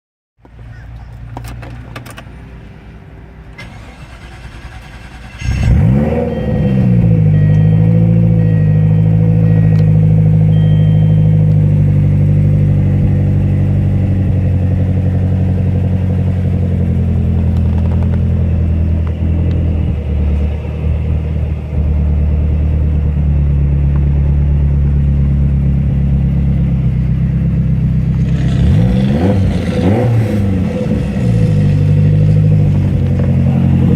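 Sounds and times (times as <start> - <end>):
car engine starting and idling: 0.7 - 33.9
low hum with clicks: 8.9 - 11.8.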